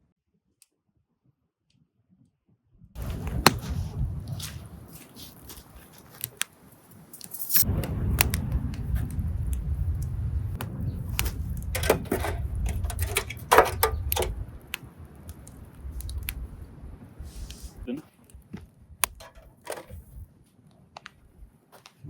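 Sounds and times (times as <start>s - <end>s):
low rumble: 2.8s - 5.7s, 7.5s - 17.9s.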